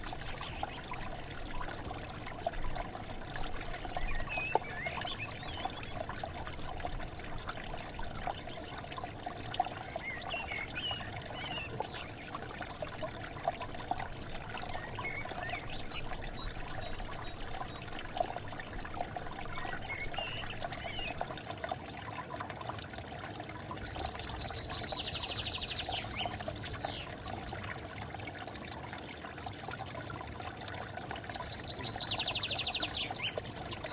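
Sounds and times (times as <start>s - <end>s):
river water flowing: 0.0s - 33.9s
small birds chirping: 3.6s - 6.9s, 14.6s - 17.9s, 19.4s - 21.2s, 23.9s - 27.1s, 31.3s - 33.9s.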